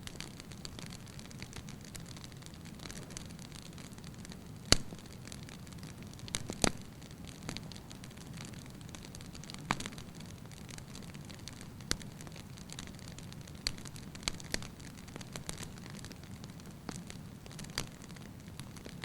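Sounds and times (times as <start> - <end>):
fire crackles and pops: 0.0 - 19.0
fire flames rustling: 0.0 - 19.0.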